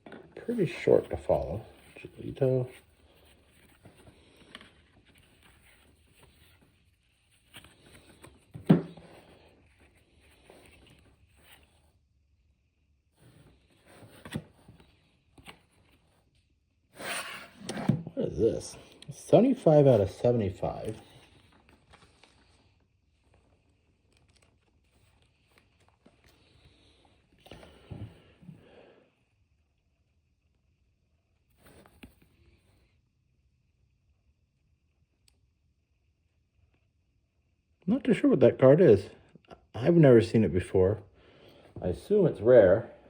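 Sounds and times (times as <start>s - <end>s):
cards rustling and clicking: 0.1s - 11.8s, 23.7s - 27.9s.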